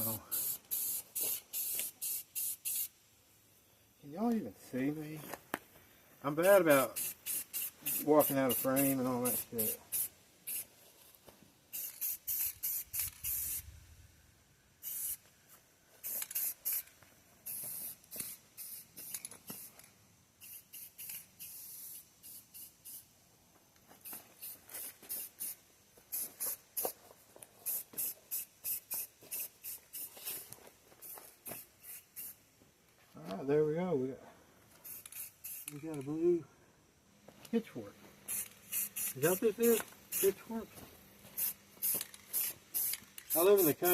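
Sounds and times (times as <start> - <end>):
spray paint can hissing: 0.0 - 3.0, 6.4 - 10.7, 11.7 - 13.9, 14.8 - 15.3, 16.0 - 23.2, 23.8 - 32.6, 34.8 - 36.0, 38.2 - 40.6, 41.2 - 43.9.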